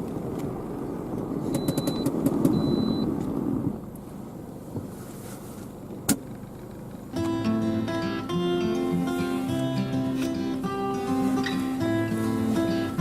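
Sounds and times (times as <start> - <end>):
tyres and engine rumble: 0.0 - 13.0
short high beeps: 1.6 - 3.1.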